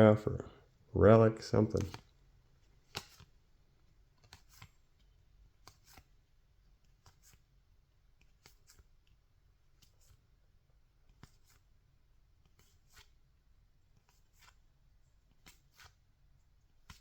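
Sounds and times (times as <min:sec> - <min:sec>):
cards flipping clicks: 0:01.7 - 0:02.0, 0:02.8 - 0:03.3.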